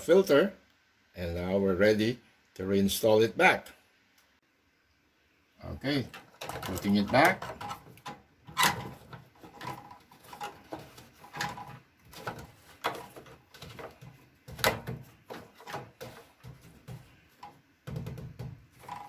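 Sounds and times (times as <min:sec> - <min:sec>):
plastic filter knocking and clicking: 0:08.8 - 0:19.0.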